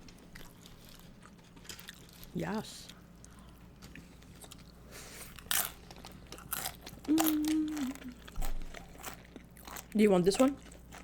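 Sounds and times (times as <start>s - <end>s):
chewing: 0.1s - 11.0s
crunching bites into chips: 5.3s - 11.0s
person humming mmm: 7.0s - 8.3s.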